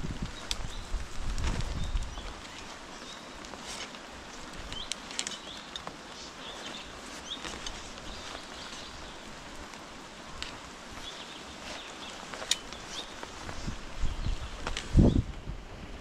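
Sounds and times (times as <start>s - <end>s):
rain hissing: 0.0s - 16.0s.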